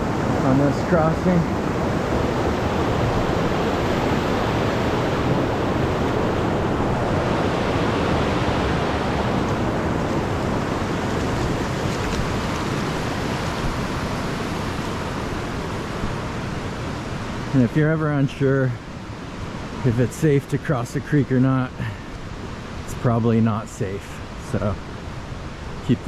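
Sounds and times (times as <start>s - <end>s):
creek rushing over rocks: 0.0s - 18.6s.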